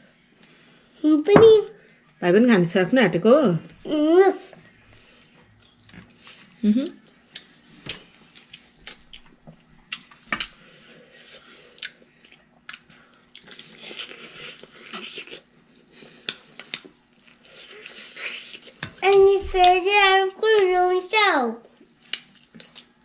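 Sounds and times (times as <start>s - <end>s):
chewing and lip-smacking: 7.3s - 19.2s, 21.7s - 23.0s.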